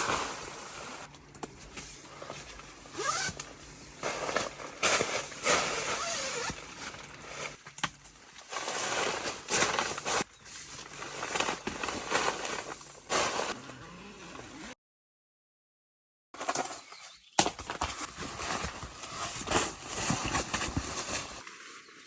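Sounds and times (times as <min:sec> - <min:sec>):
fabric rustling: 0:00.0 - 0:07.6.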